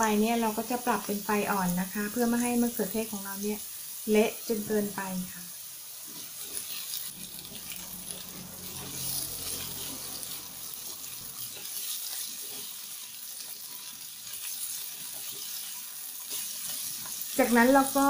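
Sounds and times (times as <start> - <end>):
vegetables sizzling in oil: 0.0 - 18.0
spatula scraping a pan: 6.0 - 17.4
low hum: 7.1 - 11.4.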